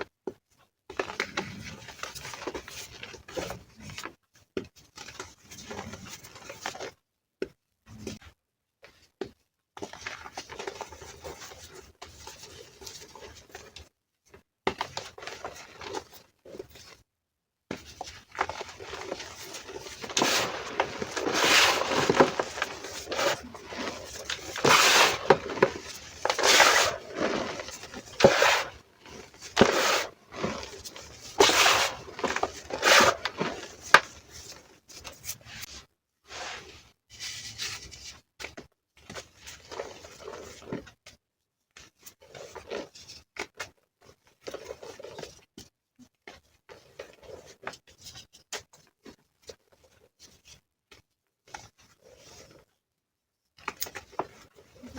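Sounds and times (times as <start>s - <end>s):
chalk being crushed: 18.8s - 34.0s.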